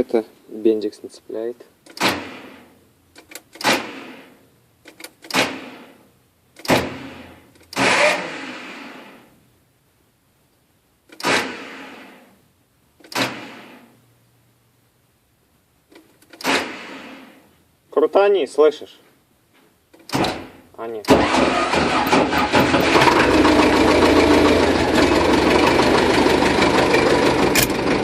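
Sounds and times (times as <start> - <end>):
tractor starter metallic clank: 21.1 - 24.1, 27.5 - 27.8.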